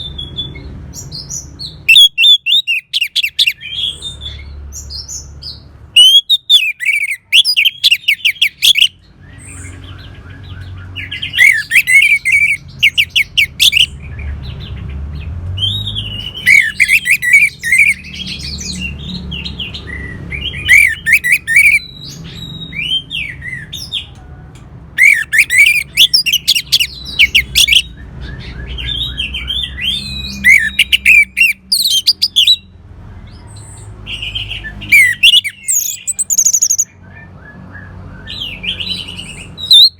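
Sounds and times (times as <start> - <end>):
thrush singing: 25.0 - 32.6, 34.1 - 37.0.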